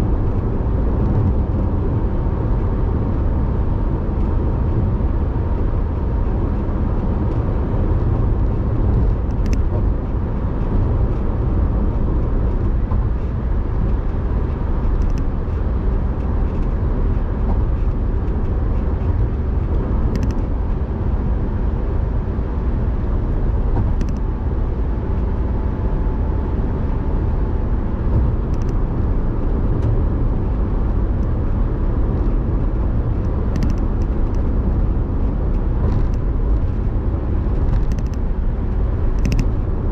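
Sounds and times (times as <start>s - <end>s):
car road and engine rumble: 0.0s - 39.9s
light ticks: 9.3s - 9.8s, 14.9s - 15.3s, 28.1s - 28.8s.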